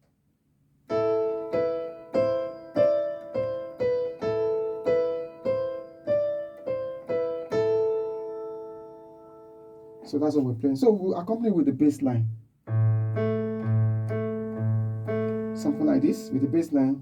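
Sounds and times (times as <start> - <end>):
piano exercise pattern: 0.0 - 10.8, 12.2 - 17.0.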